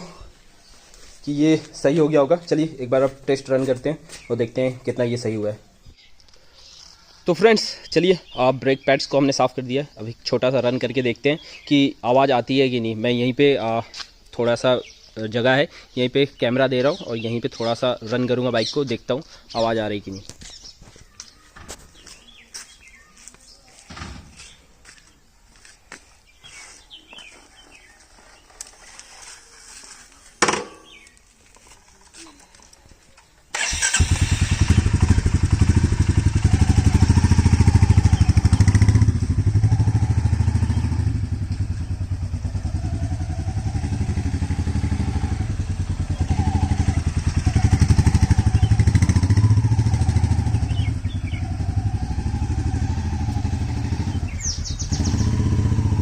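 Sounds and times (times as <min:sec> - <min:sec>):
motorcycle engine running: 0:33.9 - 0:56.0.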